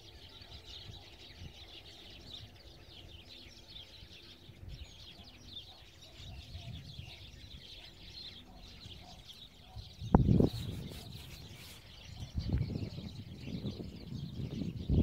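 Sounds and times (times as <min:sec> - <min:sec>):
small birds chirping and twittering: 0:00.0 - 0:15.0.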